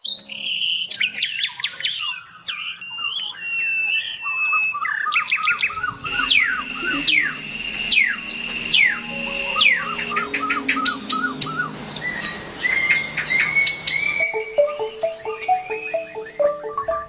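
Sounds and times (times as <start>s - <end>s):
birds chirping and trilling: 0.8s - 17.0s
steady high tone: 5.6s - 17.0s.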